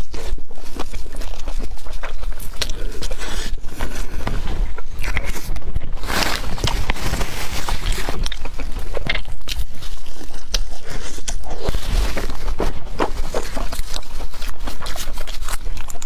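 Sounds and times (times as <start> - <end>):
person chewing crisp pastry: 0.0 - 16.0.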